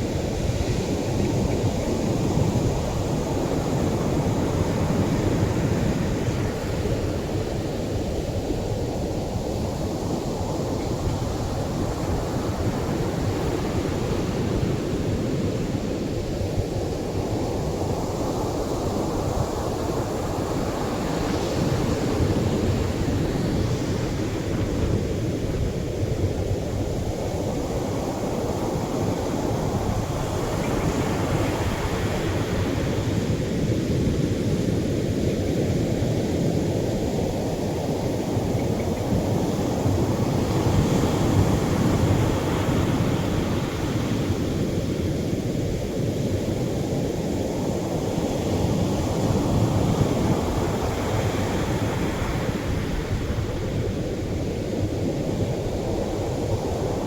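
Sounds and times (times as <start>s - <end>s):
surf waves breaking on beach: 0.0s - 57.0s.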